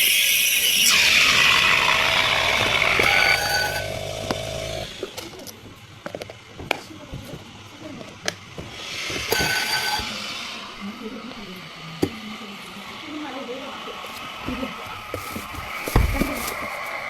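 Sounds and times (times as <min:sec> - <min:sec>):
small machine running: 0:00.0 - 0:06.2, 0:07.6 - 0:17.0
cups and utensils clicking: 0:00.9 - 0:06.9, 0:08.0 - 0:10.8.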